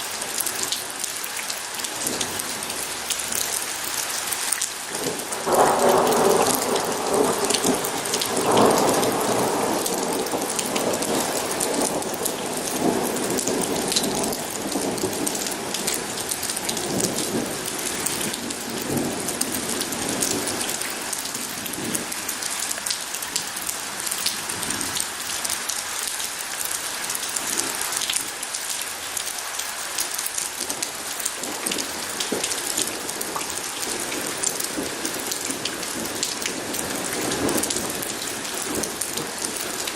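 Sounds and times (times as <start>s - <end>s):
heavy rain pattering: 0.0s - 39.9s
thunder rumbling: 5.0s - 22.2s.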